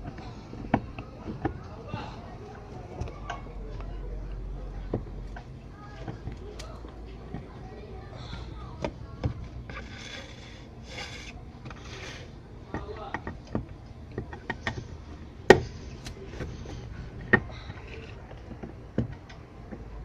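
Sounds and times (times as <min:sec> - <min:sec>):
screws scraping: 0:09.6 - 0:12.4.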